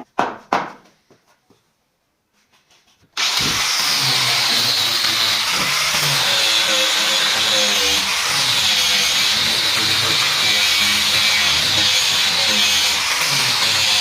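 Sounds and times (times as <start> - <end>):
power tool running on wood: 3.2 - 14.0.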